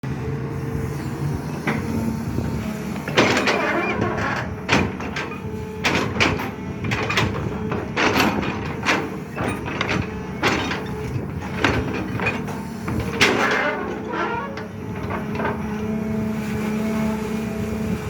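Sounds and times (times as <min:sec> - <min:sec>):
excavator diesel engine running: 0:00.1 - 0:18.0
bucket clanking and scraping rock: 0:01.7 - 0:16.3.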